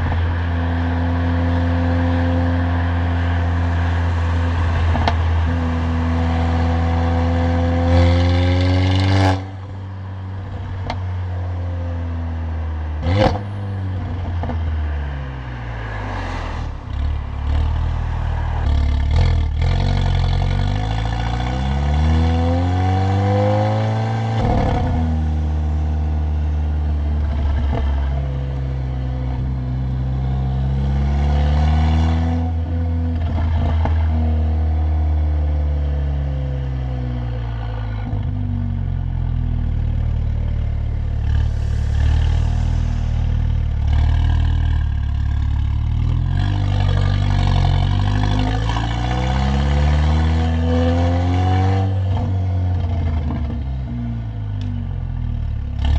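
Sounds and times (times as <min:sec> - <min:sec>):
car engine revving: 0:00.0 - 0:12.0, 0:12.9 - 0:55.9
exhaust crack: 0:37.3 - 0:49.4.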